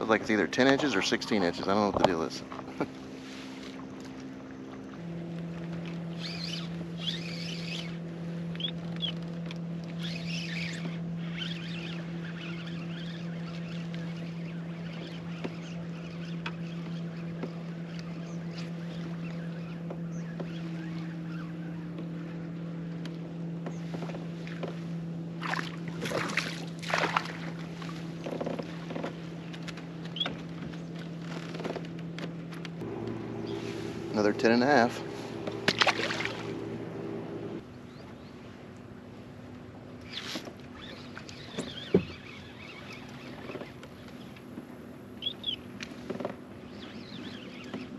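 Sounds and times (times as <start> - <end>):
birds chirping: 0.0 - 26.0, 27.6 - 38.6, 40.0 - 45.8, 46.5 - 47.9
electric motor humming: 5.0 - 22.3, 32.8 - 37.6
water splashing: 25.4 - 28.1, 32.8 - 37.6.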